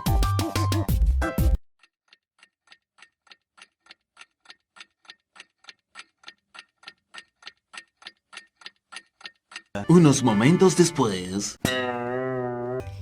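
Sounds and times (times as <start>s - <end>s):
clock ticking: 1.8s - 12.2s.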